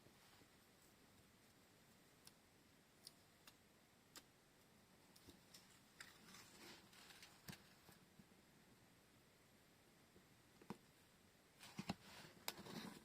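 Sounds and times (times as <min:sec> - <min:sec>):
crinkly rustle: 0:05.2 - 0:08.0.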